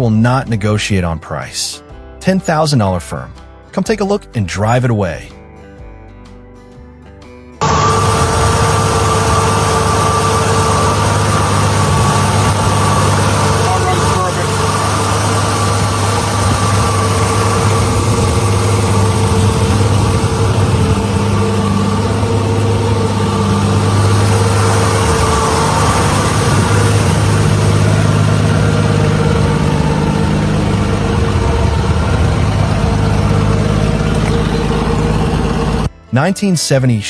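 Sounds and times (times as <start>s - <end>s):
car engine idling: 7.6s - 35.9s.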